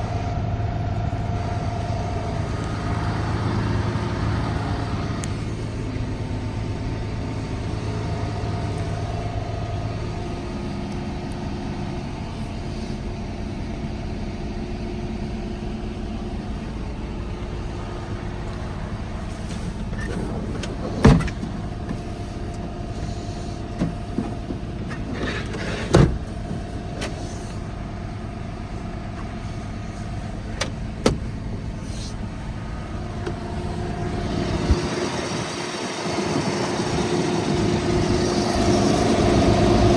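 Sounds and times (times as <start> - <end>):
truck diesel engine idling: 0.0 - 39.9.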